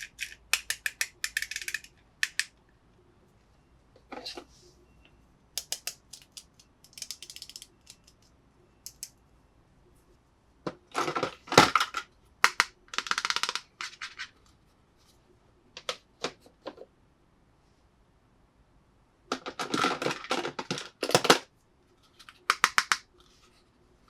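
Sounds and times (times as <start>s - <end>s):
toy pieces clicking and tapping: 0.0s - 2.6s, 5.6s - 9.1s, 12.4s - 13.7s, 22.4s - 23.0s.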